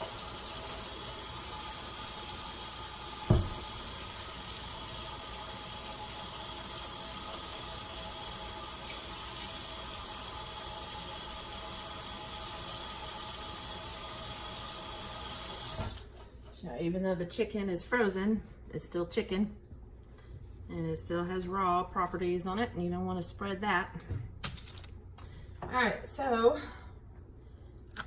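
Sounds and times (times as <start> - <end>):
tap water running: 0.0 - 16.3
sharp knock: 3.3 - 3.6.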